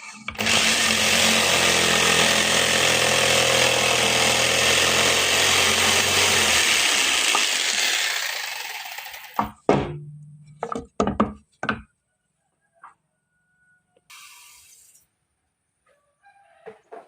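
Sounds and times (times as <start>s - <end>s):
woodworking power tool running: 0.3s - 9.6s.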